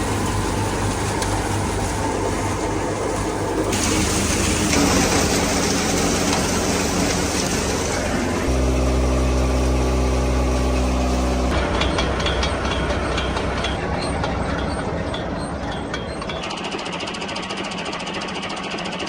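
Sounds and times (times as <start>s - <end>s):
thresher mechanical noise: 0.0s - 19.0s
tractor diesel engine running: 0.0s - 19.0s.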